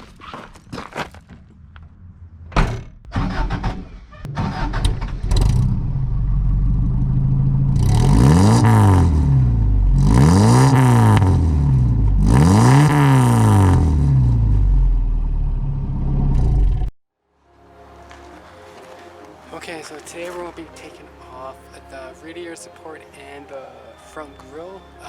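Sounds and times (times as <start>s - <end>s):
pickup engine idling and revving: 3.2s - 16.9s.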